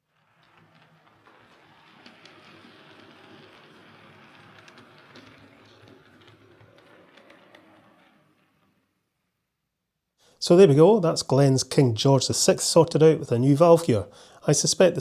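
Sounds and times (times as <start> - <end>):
model train track clicks: 0.1 - 8.9
model train motor whirr: 0.1 - 9.0.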